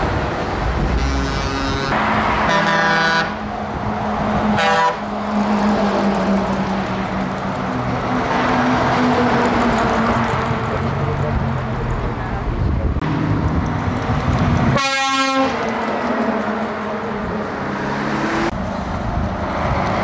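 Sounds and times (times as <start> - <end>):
truck engines running: 0.0 - 20.0
truck air horn blasts: 0.8 - 3.4, 4.6 - 5.1, 14.7 - 15.6.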